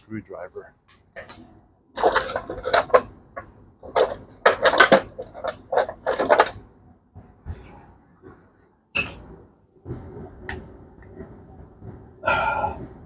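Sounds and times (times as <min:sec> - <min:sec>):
metal tools clinking and clattering: 0:02.0 - 0:03.1, 0:03.8 - 0:06.6.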